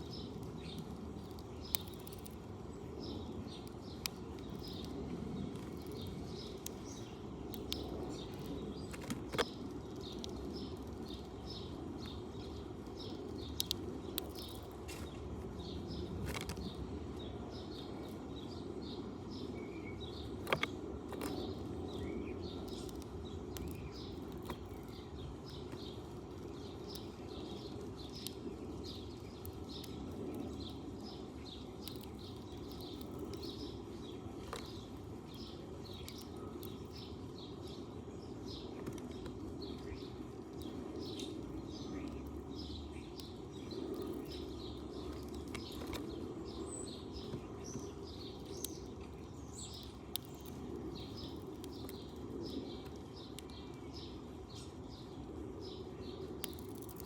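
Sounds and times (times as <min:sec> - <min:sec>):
sparrow chirping: 0:00.0 - 0:57.0.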